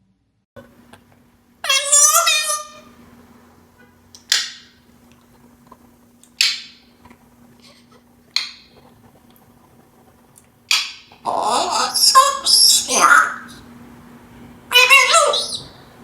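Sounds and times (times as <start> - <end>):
parrot chattering: 1.6 - 3.0, 4.2 - 4.8, 6.4 - 6.9, 7.6 - 8.8, 10.7 - 13.7, 14.7 - 15.9
parrot squawking: 1.6 - 3.0, 4.3 - 4.8, 6.4 - 6.9, 7.6 - 8.7, 10.7 - 13.6, 14.7 - 15.8.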